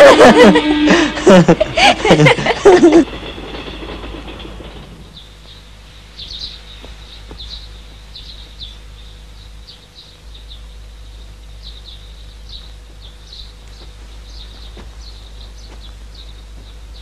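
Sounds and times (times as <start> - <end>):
steady low hum: 0.0 - 17.0
small birds chirping: 4.7 - 17.0.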